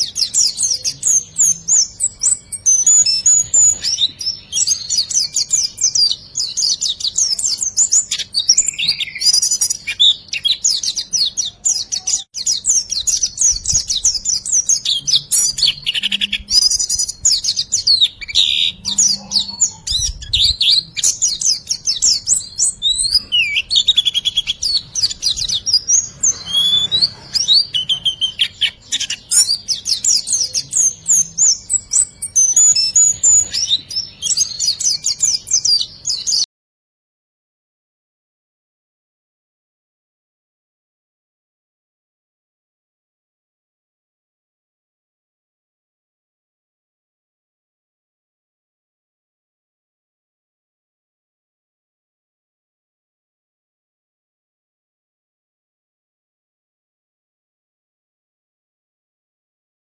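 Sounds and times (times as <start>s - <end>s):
bird twittering song: 0.0s - 36.5s.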